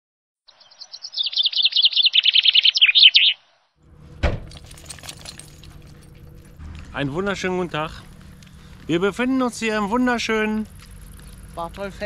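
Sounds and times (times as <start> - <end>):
songbird chirping: 0.5 - 3.8
low steady hum: 3.8 - 12.0
thump: 4.2 - 4.6.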